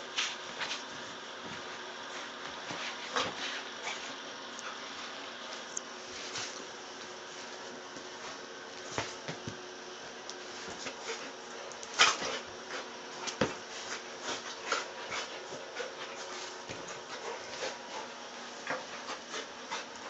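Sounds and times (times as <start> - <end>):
dog scuffling with rope: 0.0 - 20.0.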